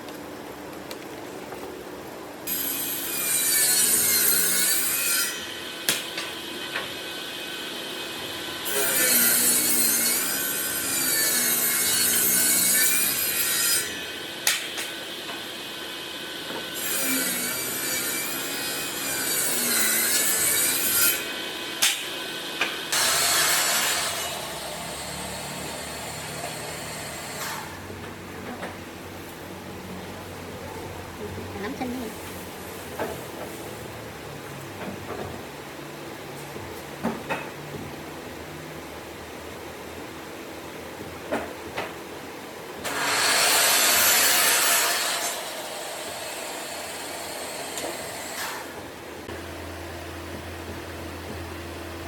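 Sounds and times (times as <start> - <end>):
power tool motor whine: 22.9 - 27.8.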